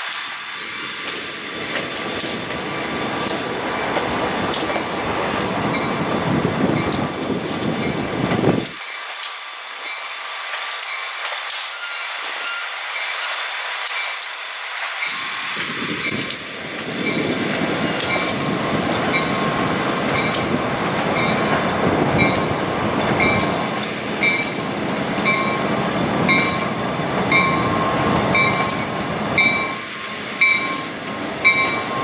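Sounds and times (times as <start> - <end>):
train rumbling over rails: 0.0 - 32.0
locomotive bell ringing: 5.6 - 6.1, 11.7 - 14.2, 15.0 - 15.4, 17.0 - 32.0.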